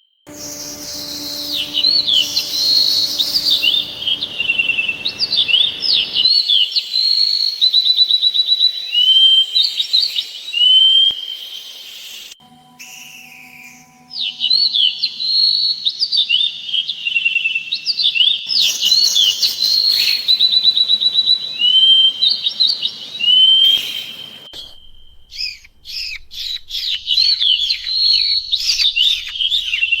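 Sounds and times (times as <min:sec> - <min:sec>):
songbirds singing: 0:15.7 - 0:24.5.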